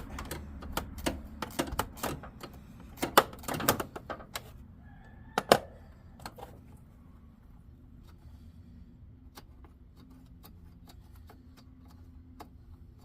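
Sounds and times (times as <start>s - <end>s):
hand tools clicking on metal: 0.0s - 4.5s.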